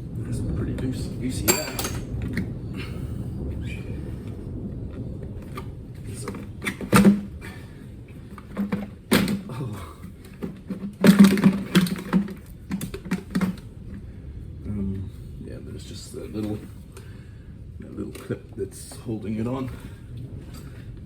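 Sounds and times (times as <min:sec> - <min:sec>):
plastic airbox clunking and rattling: 0:06.4 - 0:07.4, 0:08.2 - 0:14.0.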